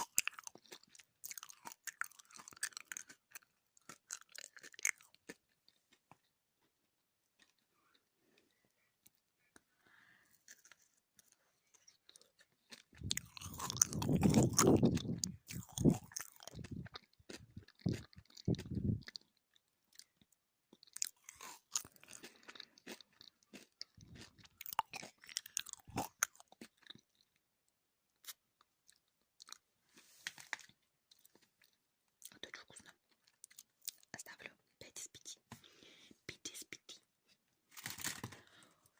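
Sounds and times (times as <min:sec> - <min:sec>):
chewing gummy candy: 0:00.0 - 0:29.8, 0:30.4 - 0:35.8
sticky mouth smacks and clicks: 0:12.9 - 0:19.1.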